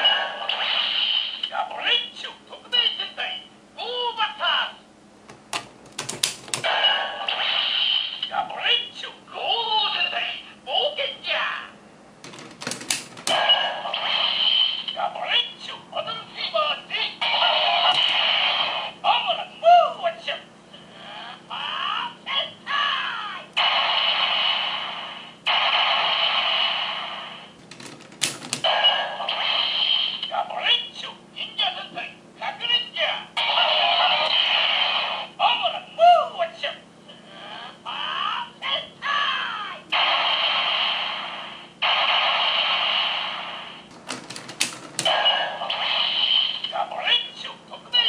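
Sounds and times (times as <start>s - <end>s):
hissing effects from toy speaker: 13.8s - 15.0s, 29.2s - 30.3s, 45.6s - 46.8s.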